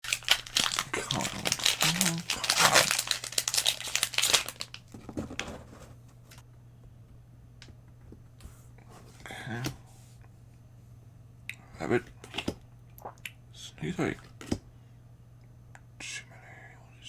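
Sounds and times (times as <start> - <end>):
plastic wrapper crinkling and tearing: 0.0 - 5.0.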